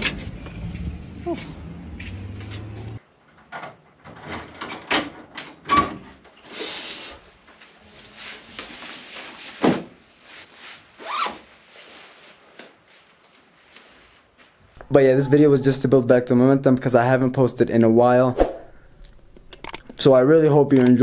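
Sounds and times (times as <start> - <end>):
footsteps: 0.0 - 3.0
door: 3.4 - 6.2
padded jacket rustling: 8.0 - 14.7.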